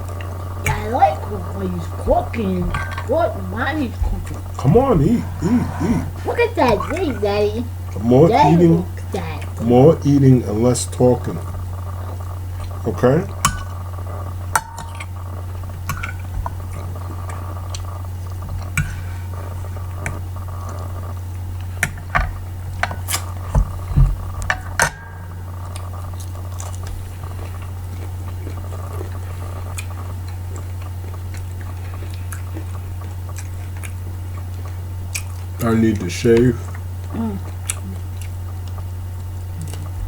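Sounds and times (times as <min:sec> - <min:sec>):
steady low hum: 0:00.0 - 0:40.0
person chewing: 0:04.2 - 0:07.0, 0:11.2 - 0:40.0.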